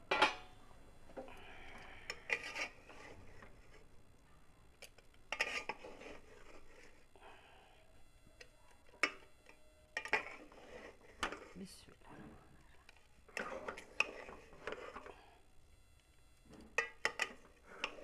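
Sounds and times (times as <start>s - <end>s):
spoon scraping in a pot: 1.7s - 4.0s, 4.8s - 7.1s, 8.4s - 11.6s, 12.8s - 15.4s, 16.6s - 18.0s.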